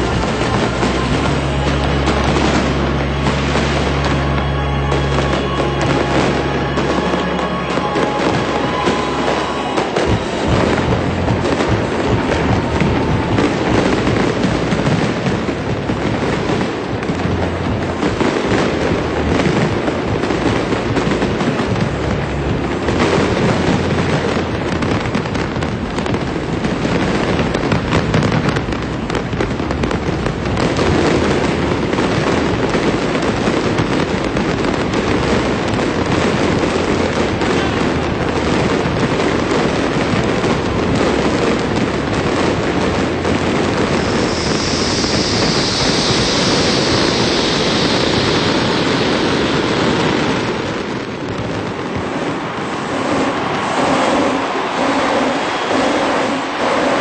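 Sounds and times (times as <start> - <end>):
fireworks bangs and crackles: 0.0 - 57.0
high hiss: 43.7 - 57.0.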